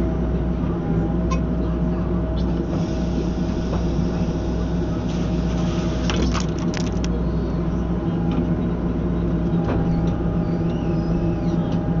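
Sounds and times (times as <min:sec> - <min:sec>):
excavator engine and hydraulic drone: 0:00.0 - 0:12.0.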